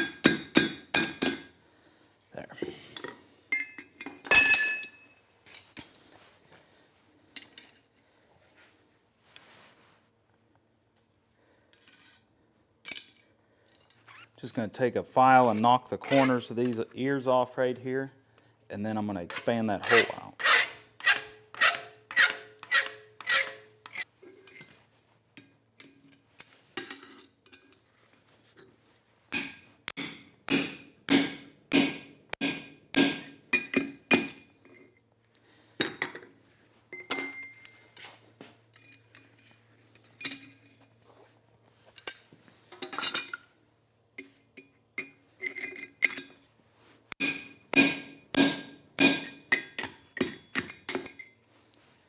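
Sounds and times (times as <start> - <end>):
hammer striking steel anvil: 29.4 - 34.4, 47.2 - 50.4.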